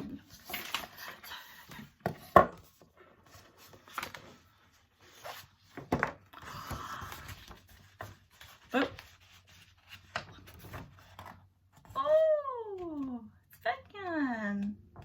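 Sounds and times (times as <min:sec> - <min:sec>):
papery rustling: 0:03.1 - 0:11.9.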